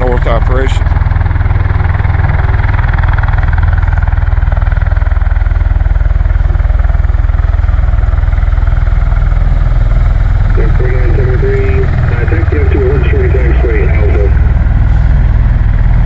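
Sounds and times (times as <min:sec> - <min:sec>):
tiltrotor aircraft running: 0:00.0 - 0:16.0.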